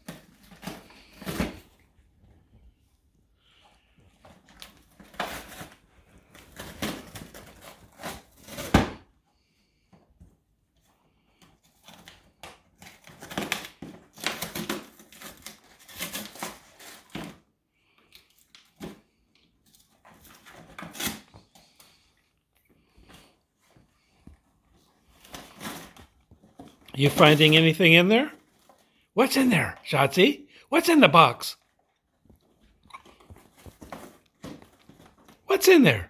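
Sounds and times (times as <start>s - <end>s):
dog rustling and scratching in box: 10.8s - 17.5s, 23.0s - 26.9s, 32.1s - 35.4s.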